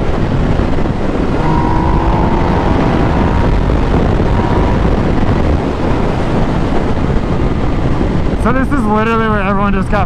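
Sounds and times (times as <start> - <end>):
road noise: 0.0 - 8.4
wind rushing over microphone: 0.0 - 10.0
motorcycle engine: 0.7 - 6.8
faint steady whine: 0.9 - 6.7.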